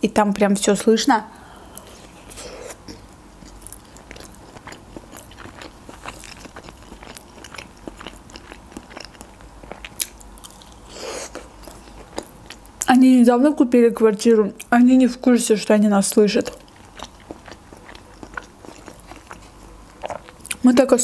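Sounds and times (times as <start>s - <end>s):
chewing crisp pastry: 1.6s - 12.9s, 16.1s - 20.9s.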